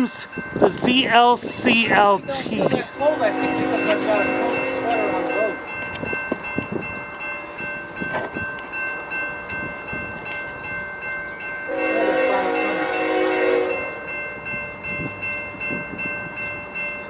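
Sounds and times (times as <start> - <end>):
freight train rumble: 0.0 - 17.0
locomotive air horn blast: 3.1 - 5.5, 11.7 - 13.8.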